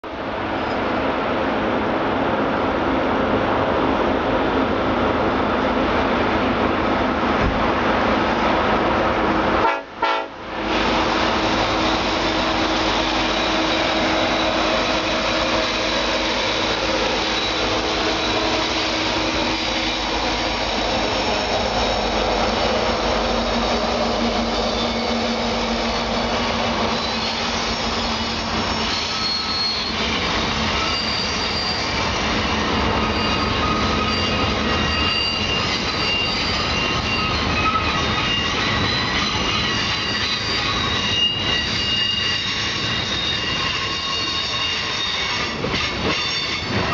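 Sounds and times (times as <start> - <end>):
freight train rumbling: 0.0 - 46.9
high-pitched wheel squeal: 11.6 - 46.9.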